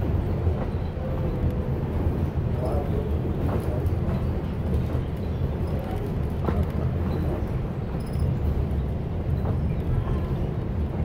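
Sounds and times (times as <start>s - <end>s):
train interior rumble: 0.0s - 11.0s.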